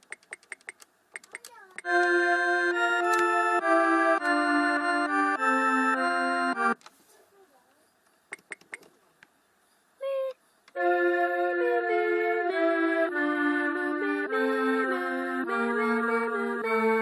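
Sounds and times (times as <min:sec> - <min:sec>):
electronic keyboard playing chords: 0:01.8 - 0:06.8, 0:10.8 - 0:17.0.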